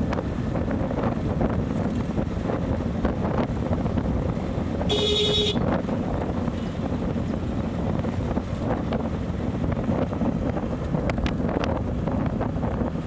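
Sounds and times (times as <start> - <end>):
wind buffeting microphone: 0.0 - 13.0
vehicle horn beep: 4.9 - 5.7.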